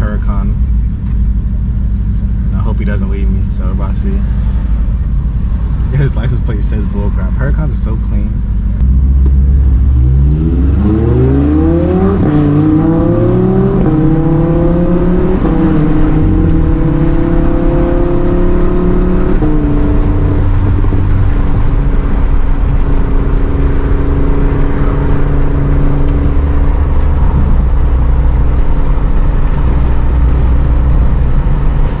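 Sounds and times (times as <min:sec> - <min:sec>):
car engine accelerating through gears: 0:08.7 - 0:32.0.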